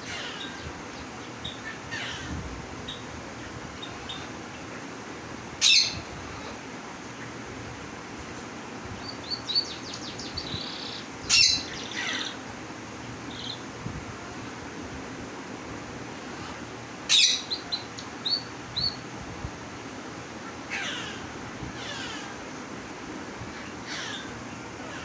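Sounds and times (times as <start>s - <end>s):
harsh bird calls: 0.0s - 7.4s, 8.9s - 13.8s, 16.2s - 19.1s, 20.2s - 22.7s, 23.4s - 25.0s
bird chirping: 9.0s - 12.4s, 17.1s - 19.0s.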